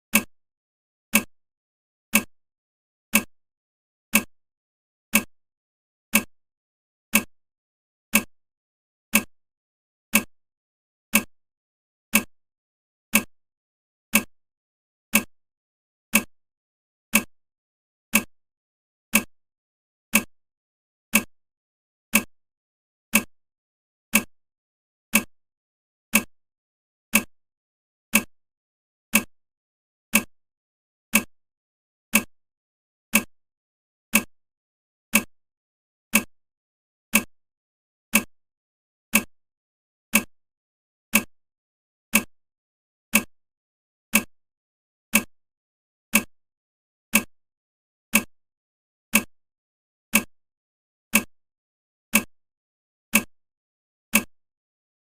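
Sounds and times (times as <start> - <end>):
timer ticking: 0.1 - 0.3, 1.1 - 1.3, 2.1 - 2.3, 3.1 - 3.3, 4.1 - 4.3, 5.1 - 5.3, 6.1 - 6.3, 7.1 - 7.4, 8.1 - 8.3, 9.1 - 9.3, 10.1 - 10.3, 11.1 - 11.3, 12.1 - 12.3, 13.1 - 13.3, 14.1 - 14.3, 15.1 - 15.4, 16.1 - 16.3, 17.1 - 17.3, 18.1 - 18.3, 19.1 - 19.3, 20.1 - 20.4, 21.1 - 21.3, 22.1 - 22.3, 23.1 - 23.4, 24.1 - 24.4, 25.1 - 25.3, 26.1 - 26.4, 27.1 - 27.4, 28.1 - 28.4, 29.1 - 29.3, 30.1 - 30.3, 31.1 - 31.3, 32.1 - 32.4, 33.1 - 33.4, 34.1 - 34.4, 35.1 - 35.4, 36.1 - 36.4, 37.1 - 37.3, 38.1 - 38.4, 39.1 - 39.3, 40.1 - 40.4, 41.1 - 41.4, 42.1 - 42.4, 43.1 - 43.4, 44.1 - 44.4, 45.1 - 45.4, 46.1 - 46.4, 47.1 - 47.4, 48.1 - 48.4, 49.1 - 49.3, 50.1 - 50.3, 51.1 - 51.4, 52.1 - 52.3, 53.1 - 53.4, 54.1 - 54.4.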